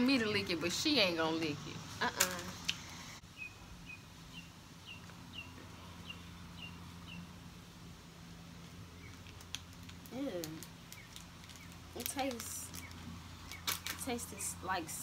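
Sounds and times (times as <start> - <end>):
bird chirping: 2.3 - 7.4, 10.5 - 13.9.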